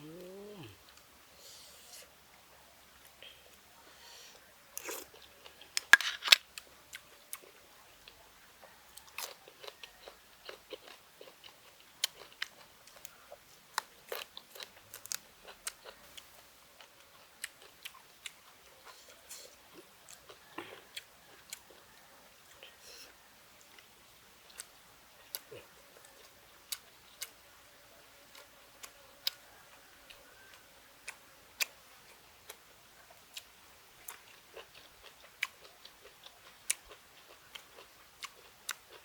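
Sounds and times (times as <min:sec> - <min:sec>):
person chewing with clicks: 0:04.8 - 0:07.6, 0:09.0 - 0:16.0, 0:30.5 - 0:39.0
crunchy bite: 0:05.8 - 0:06.5.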